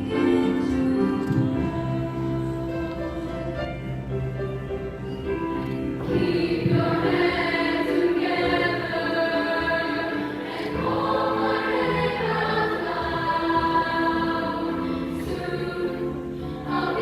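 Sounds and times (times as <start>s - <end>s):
choir singing held chords: 6.0s - 17.0s.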